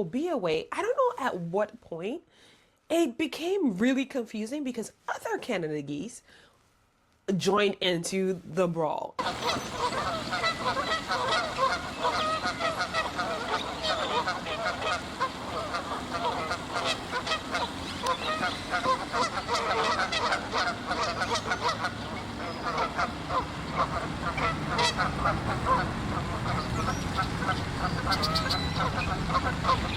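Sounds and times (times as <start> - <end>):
geese honking: 9.2 - 29.9.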